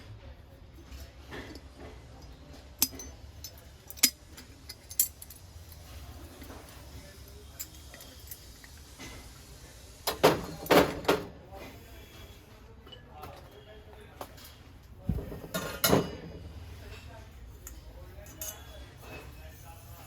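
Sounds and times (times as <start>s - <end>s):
metal utensils clinking: 18.2s - 19.3s.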